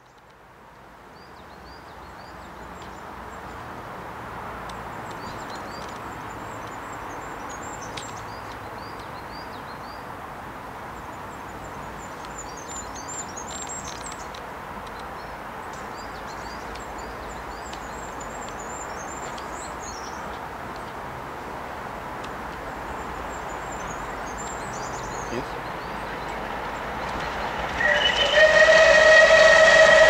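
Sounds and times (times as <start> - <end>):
small birds chirping: 4.7 - 10.1, 10.9 - 21.6, 22.2 - 28.2.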